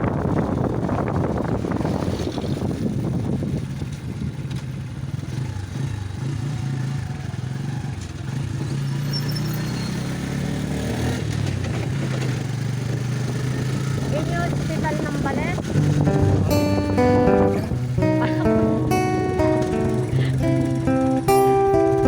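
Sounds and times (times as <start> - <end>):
wind on microphone: 0.0 - 5.8, 11.0 - 20.2
vehicle engine running: 0.0 - 22.0.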